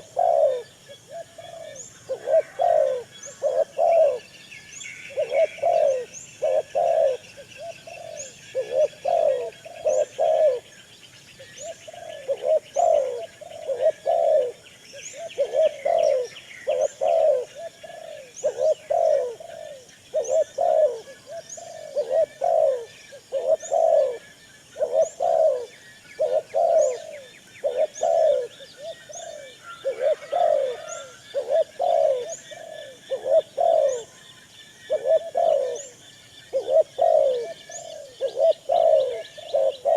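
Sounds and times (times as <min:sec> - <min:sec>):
birds calling low: 0:00.0 - 0:39.9.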